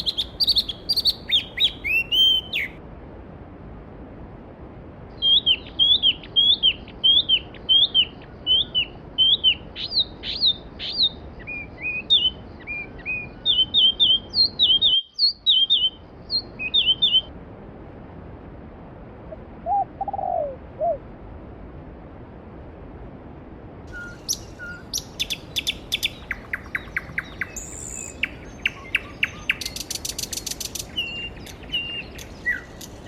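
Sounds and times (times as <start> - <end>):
lower falling bird calls: 0.0 - 2.8, 5.2 - 17.3, 23.9 - 33.0
songbird chirping: 0.0 - 2.8, 5.1 - 17.3, 23.9 - 33.0.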